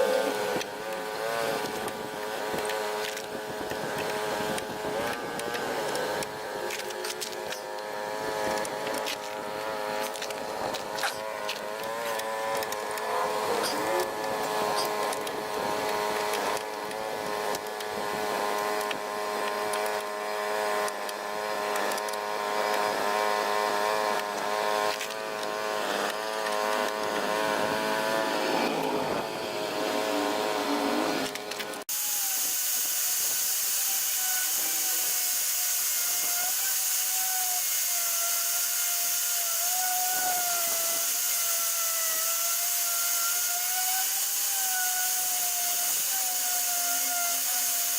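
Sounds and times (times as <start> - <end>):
higher wavering tool whine: 0.0 - 47.9
power tool whining: 0.0 - 47.9
scraping clicks against metal: 10.0 - 20.2, 20.8 - 22.9, 24.1 - 27.3.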